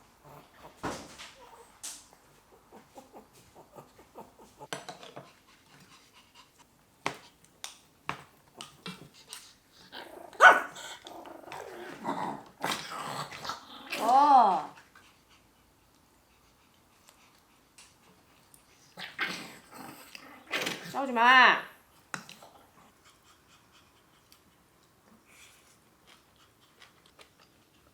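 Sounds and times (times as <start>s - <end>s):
dog growling and barking: 9.8s - 14.4s, 19.0s - 21.0s.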